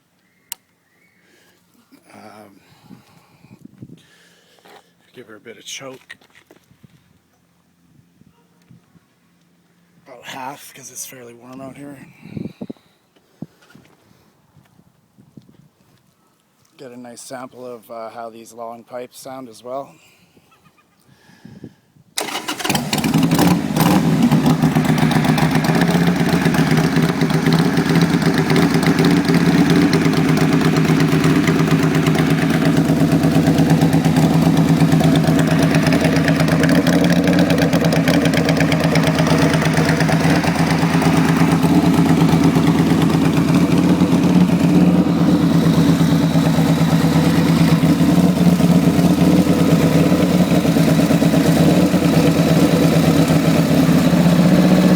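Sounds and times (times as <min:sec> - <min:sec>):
starter motor turning: 0:22.2 - 0:51.2
motorcycle engine idling: 0:22.2 - 0:54.9.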